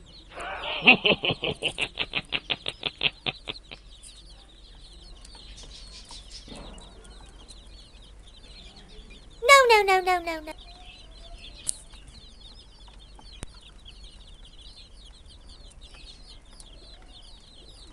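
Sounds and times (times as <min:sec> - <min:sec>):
baby chicks peeping: 0:00.0 - 0:17.9.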